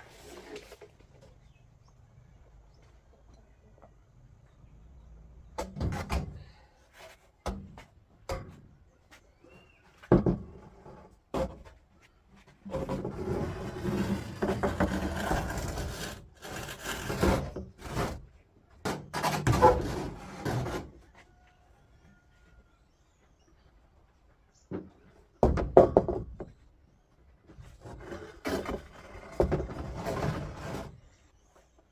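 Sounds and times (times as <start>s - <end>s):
continuous rubbing or scraping: 0.0s - 1.6s, 10.4s - 21.7s, 27.4s - 31.8s
knocks and scraping of materials: 0.0s - 1.7s, 5.4s - 22.5s, 24.5s - 31.9s.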